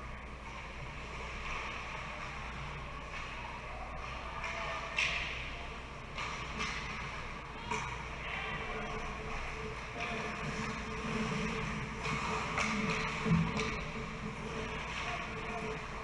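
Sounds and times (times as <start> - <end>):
arena hum: 0.0 - 16.0
skates and sticks scraping ice: 9.2 - 16.0.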